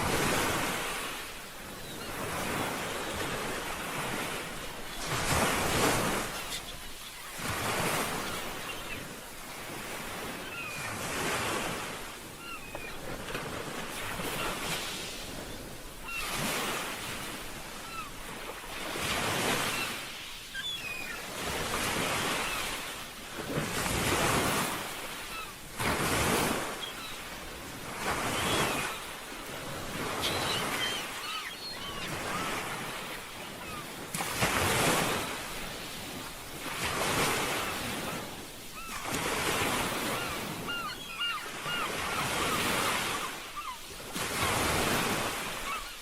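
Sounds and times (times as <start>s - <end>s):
ocean surf washing ashore: 0.0s - 46.0s.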